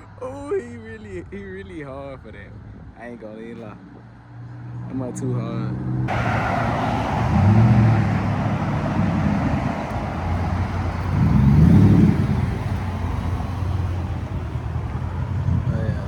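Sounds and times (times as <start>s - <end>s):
loud vee eight engine exhaust: 6.1s - 16.0s.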